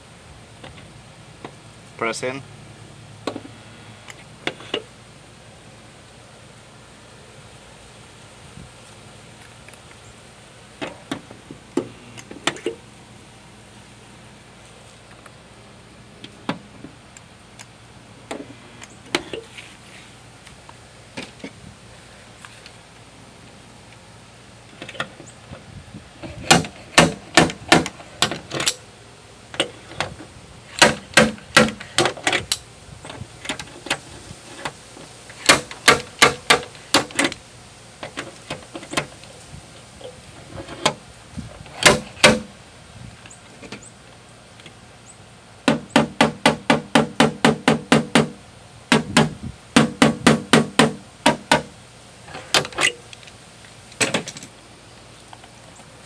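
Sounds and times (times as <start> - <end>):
metal panel ringing: 45.7 - 51.8.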